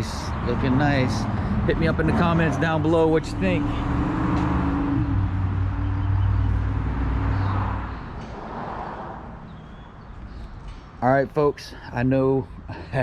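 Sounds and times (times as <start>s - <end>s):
vehicle engine running: 0.5s - 8.0s.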